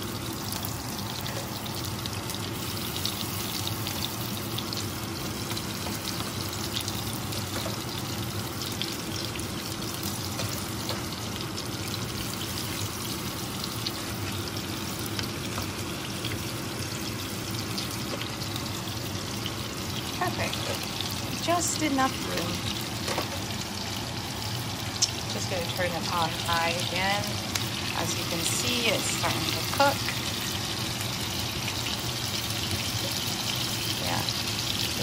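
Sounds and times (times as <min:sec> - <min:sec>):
meatballs sizzling in oil: 0:00.0 - 0:35.0
oil crackling and popping: 0:00.0 - 0:35.0.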